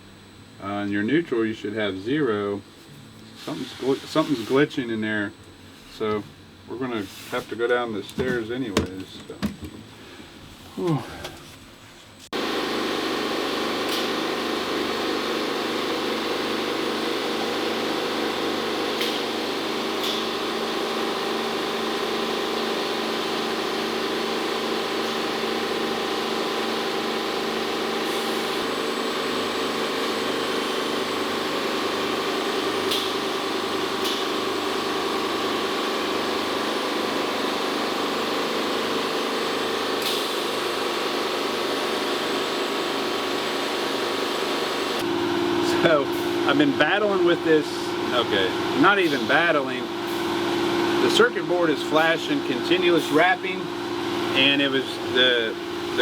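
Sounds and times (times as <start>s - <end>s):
machinery humming: 12.4s - 56.0s.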